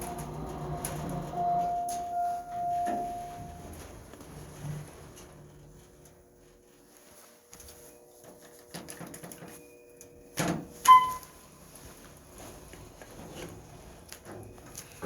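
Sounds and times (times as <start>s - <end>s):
lift humming: 0.0s - 5.9s.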